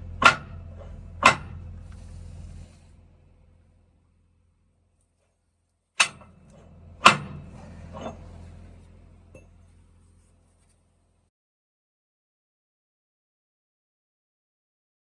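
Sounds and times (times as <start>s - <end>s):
metal-on-metal knocks: 0.2s - 1.7s, 6.0s - 8.4s.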